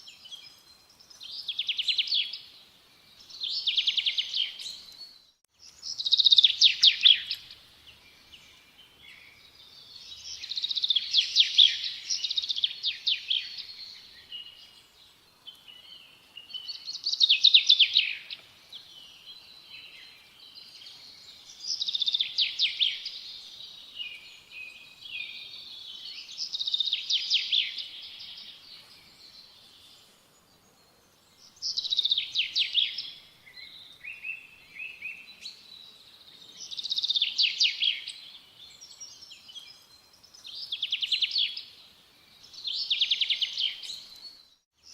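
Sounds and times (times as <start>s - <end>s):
faint outdoor background noise: 0.0s - 44.9s.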